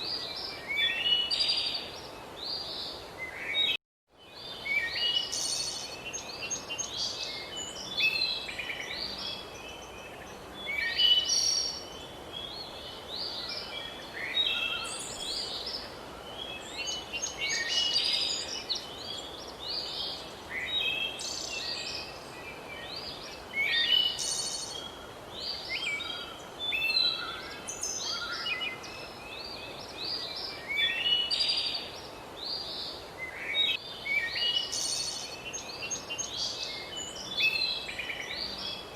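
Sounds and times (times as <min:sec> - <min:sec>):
faint outdoor hiss: 0:00.0 - 0:38.9
songbirds chirping and trilling: 0:00.0 - 0:38.9.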